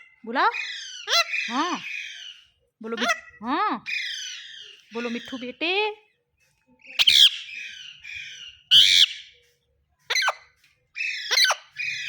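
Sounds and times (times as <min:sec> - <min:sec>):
parrot raspy chatter: 0:00.0 - 0:05.5, 0:07.0 - 0:09.3, 0:10.0 - 0:12.0
parrot squawking and screeching: 0:00.0 - 0:05.5, 0:06.9 - 0:09.3, 0:10.0 - 0:12.0.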